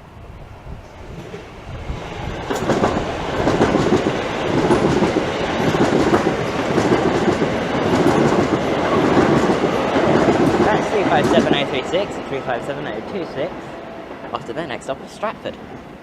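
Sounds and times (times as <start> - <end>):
train wheels running on rails: 0.8 - 16.0.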